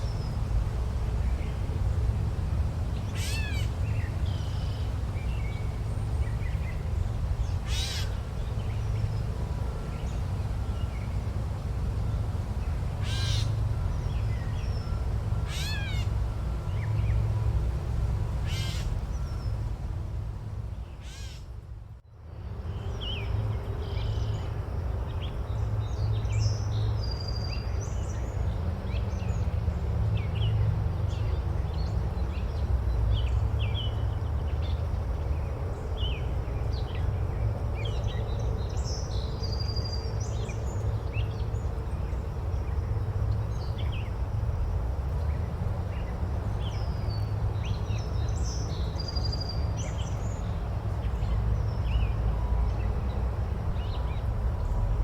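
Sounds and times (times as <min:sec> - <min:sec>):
loud bird calls: 0:03.1 - 0:04.9, 0:07.6 - 0:08.2, 0:13.0 - 0:13.6, 0:15.4 - 0:16.2, 0:18.4 - 0:19.4, 0:21.0 - 0:21.5.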